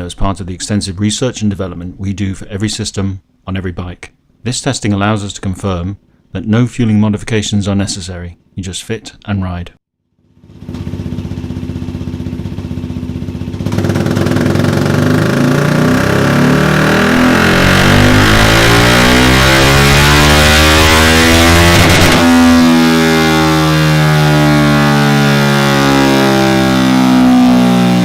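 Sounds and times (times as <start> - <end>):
motorcycle engine revving: 10.2 - 28.0.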